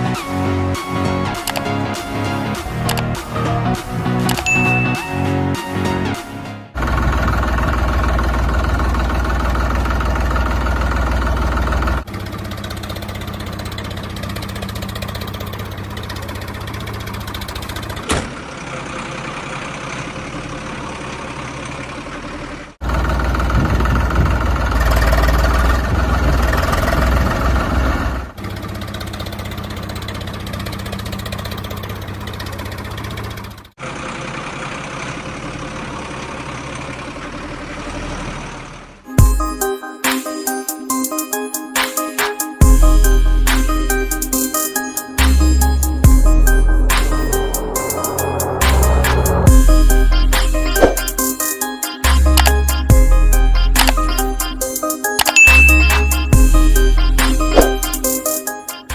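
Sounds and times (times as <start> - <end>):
vehicle engine running: 0.0 - 39.1, 45.2 - 58.9.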